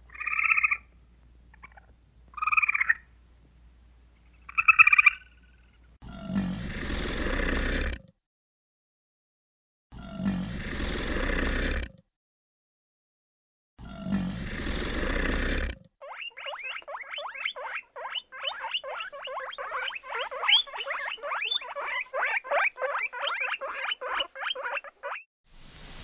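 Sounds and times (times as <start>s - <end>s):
guinea pigs squeaking: 16.0s - 25.3s.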